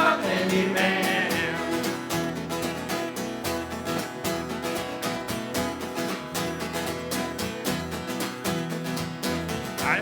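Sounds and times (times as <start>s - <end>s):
bass line: 0.0s - 2.8s
acoustic guitar strumming: 0.0s - 10.0s.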